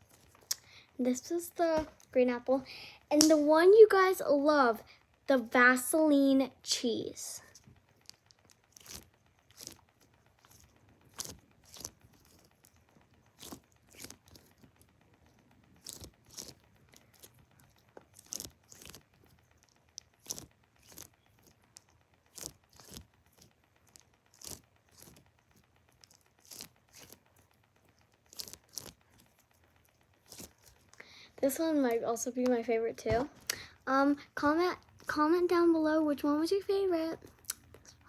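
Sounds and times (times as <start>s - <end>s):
squishy toy crinkly squishes: 7.2s - 35.2s.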